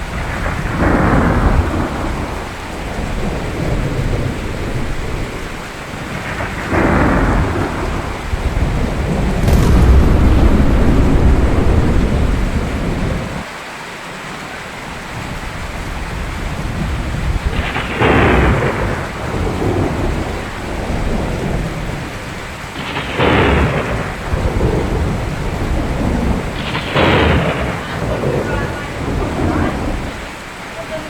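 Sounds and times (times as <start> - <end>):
rain falling: 8.6 - 13.4
thunder rumbling: 9.0 - 13.4
sharp thunder cracks: 9.2 - 13.4.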